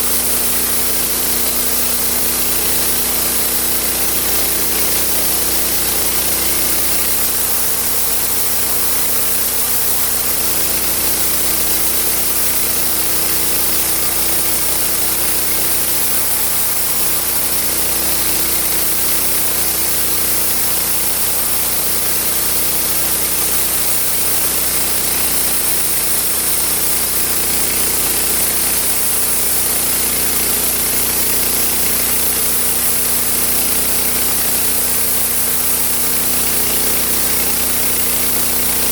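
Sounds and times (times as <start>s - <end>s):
engine running: 0.0s - 38.9s
saw blade cutting wood: 0.0s - 38.9s.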